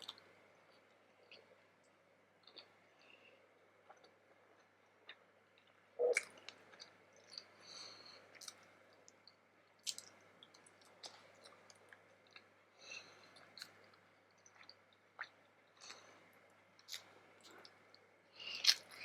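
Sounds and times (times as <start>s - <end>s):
chewing with wet mouth clicks: 3.9s - 7.5s, 8.3s - 16.2s, 18.5s - 19.0s.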